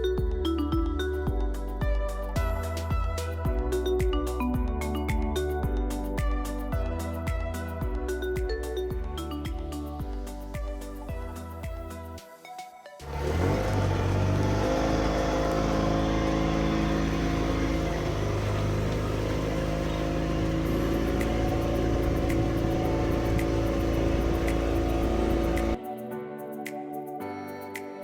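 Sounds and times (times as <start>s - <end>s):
motorboat engine: 13.1s - 25.8s.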